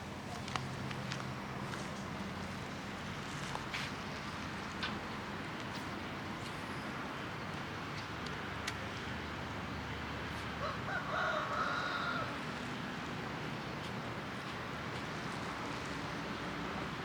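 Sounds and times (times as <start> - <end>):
outdoor background noise: 0.0 - 17.0
rooster crowing: 10.6 - 12.4.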